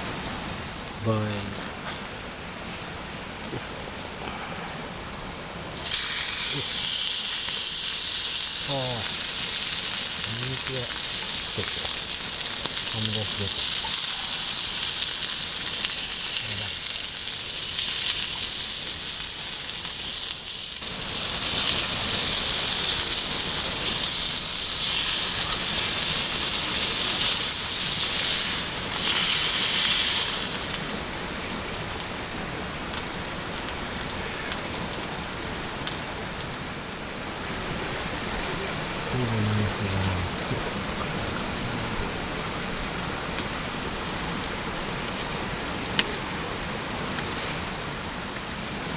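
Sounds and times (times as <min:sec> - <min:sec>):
steak sizzling in a pan: 0:05.8 - 0:32.3
crackles: 0:05.8 - 0:48.9.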